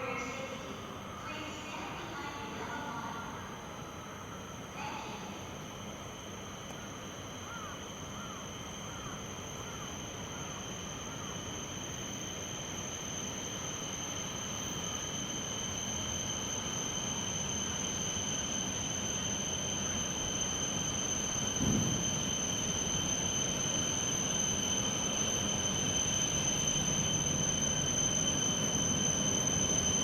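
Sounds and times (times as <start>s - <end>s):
train rushing noise: 9.3s - 30.0s.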